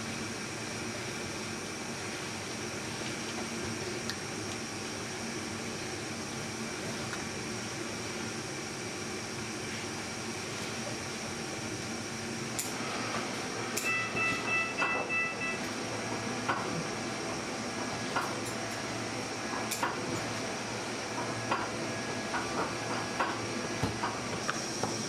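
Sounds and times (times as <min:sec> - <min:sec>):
workshop background hiss: 0:00.0 - 0:25.0
brief high-pitched tone: 0:13.8 - 0:15.6.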